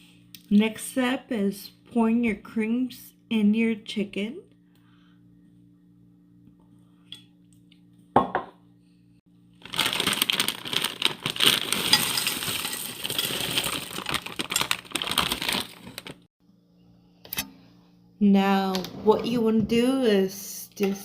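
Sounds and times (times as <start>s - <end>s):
spoon clinking and scraping can: 11.5s - 14.8s.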